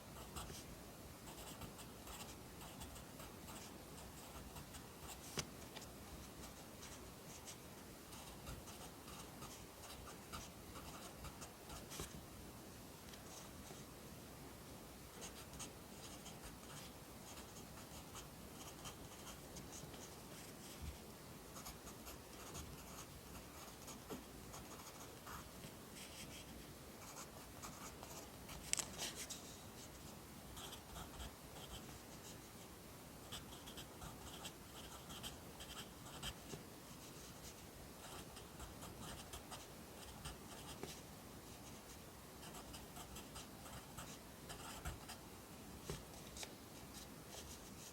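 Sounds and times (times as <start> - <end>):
pencil scratching on paper: 21.6 - 30.0, 30.6 - 32.4, 33.3 - 41.0, 42.4 - 45.2.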